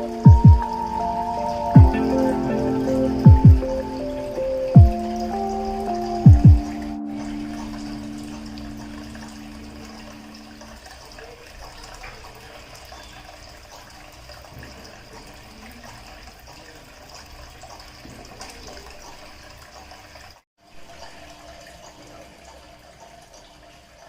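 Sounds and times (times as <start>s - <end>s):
fountain water splashing: 0.0s - 18.9s.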